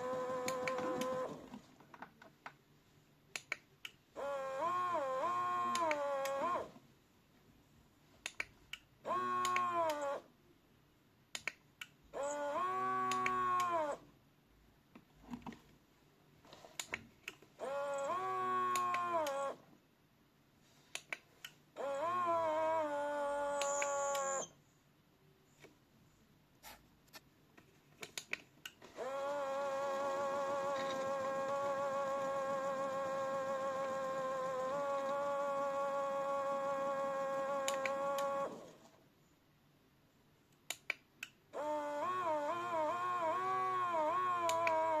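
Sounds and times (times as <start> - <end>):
small electric motor whining: 0.0 - 1.6, 4.2 - 6.8, 9.0 - 10.3, 12.1 - 14.0, 17.6 - 19.6, 21.8 - 24.6, 28.8 - 39.0, 41.5 - 45.0
sharp clicks: 3.3 - 4.0, 8.2 - 10.1, 11.3 - 12.0, 23.5 - 24.5, 28.0 - 29.2, 37.5 - 38.4, 40.5 - 41.4.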